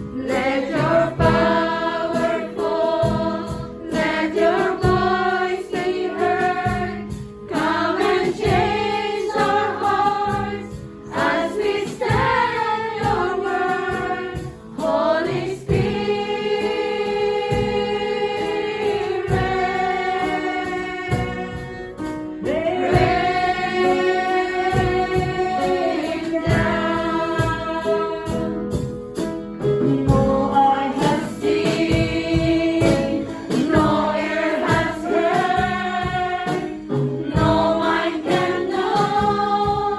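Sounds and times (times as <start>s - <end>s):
choir singing worship song: 0.0s - 39.9s.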